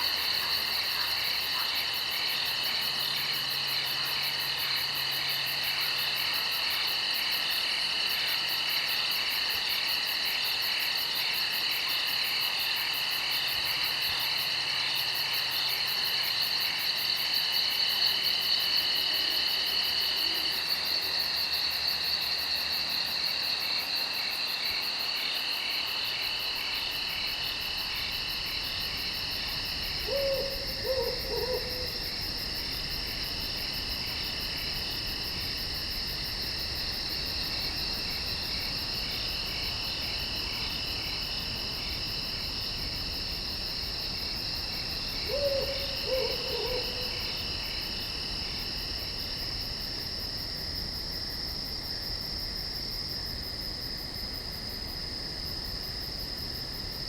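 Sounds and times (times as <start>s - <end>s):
night insects trilling: 0.0s - 57.0s.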